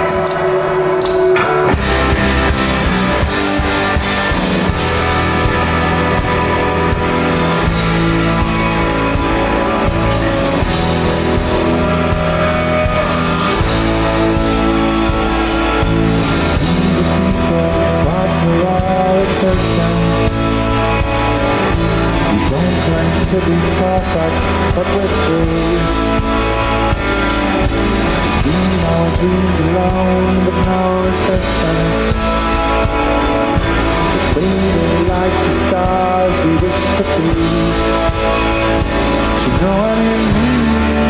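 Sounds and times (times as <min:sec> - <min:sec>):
drum kit: 0:00.0 - 0:41.0
electric guitars: 0:00.0 - 0:41.0.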